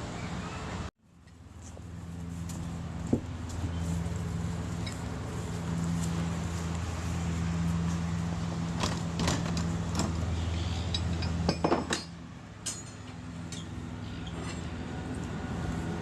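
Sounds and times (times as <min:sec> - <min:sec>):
tram electric hum: 0:00.0 - 0:16.0
tram clanks and rattles: 0:08.7 - 0:10.3.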